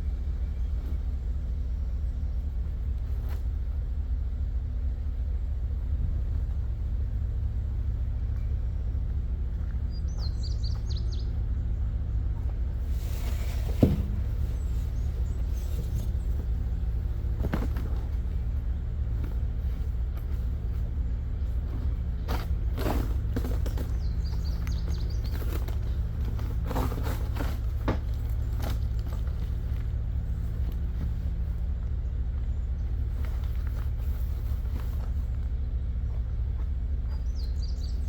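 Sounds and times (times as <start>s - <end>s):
truck engine idling: 0.0s - 38.0s
bird chirping: 8.7s - 12.2s, 23.7s - 26.1s, 37.0s - 38.0s.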